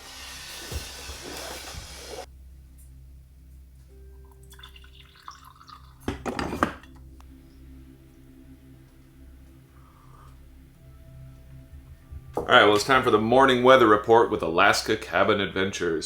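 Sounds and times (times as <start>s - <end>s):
water pouring: 4.3s - 7.0s.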